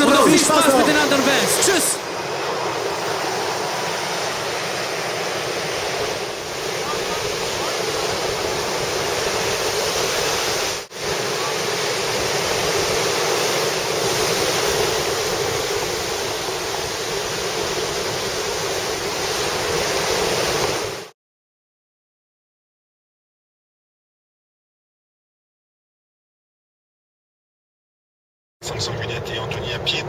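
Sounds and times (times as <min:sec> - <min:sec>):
rushing water: 0:00.0 - 0:21.1.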